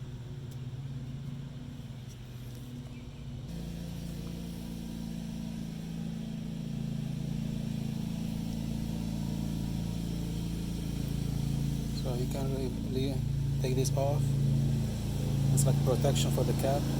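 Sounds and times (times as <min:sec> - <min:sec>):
engine humming: 0:00.0 - 0:16.9.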